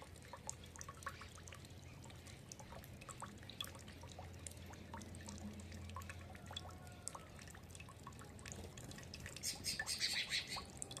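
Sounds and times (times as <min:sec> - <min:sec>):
small birds chirping and twittering: 0:09.4 - 0:10.7.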